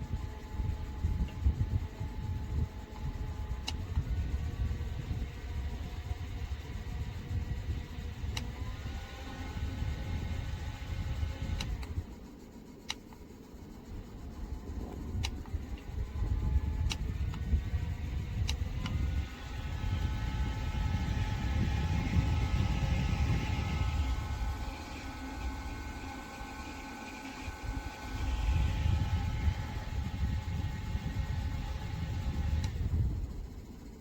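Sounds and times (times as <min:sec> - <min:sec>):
desk fan air buffeting: 0:00.0 - 0:34.0
steady multi-tone whine: 0:00.0 - 0:34.0
sharp clicks: 0:08.2 - 0:08.7, 0:11.4 - 0:12.0, 0:12.8 - 0:13.4, 0:14.8 - 0:15.9, 0:16.6 - 0:19.2, 0:29.2 - 0:32.8.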